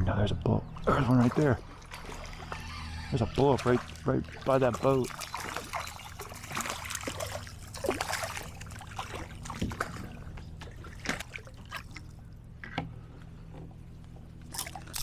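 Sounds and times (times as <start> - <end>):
water trickling and splashing: 0.7 - 12.6.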